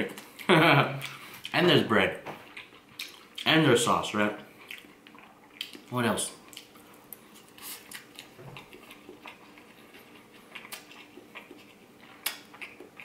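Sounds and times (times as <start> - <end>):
person chewing wet mouth clicks: 2.5 - 3.5, 4.6 - 5.9, 7.8 - 13.0.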